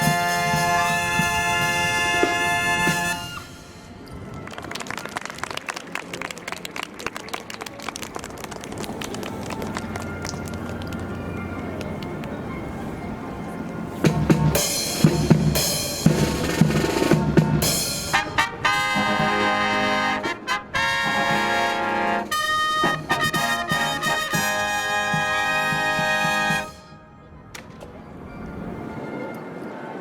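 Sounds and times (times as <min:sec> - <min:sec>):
brass band fanfare: 0:00.0 - 0:03.9, 0:14.1 - 0:27.0
drum strokes: 0:00.0 - 0:03.9, 0:14.0 - 0:19.7.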